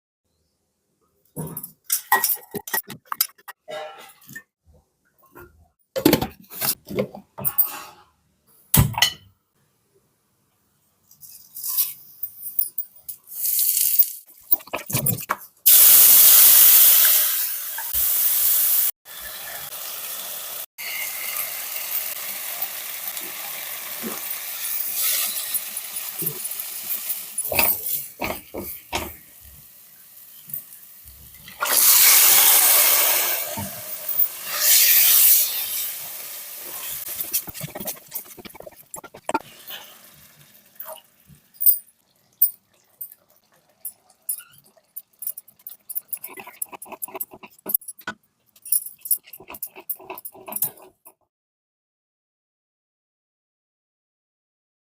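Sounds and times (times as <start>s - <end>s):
loud cooking hiss: 15.7s - 27.2s, 31.6s - 37.4s
utensils clicking and knocking: 37.0s - 39.5s, 43.8s - 51.2s.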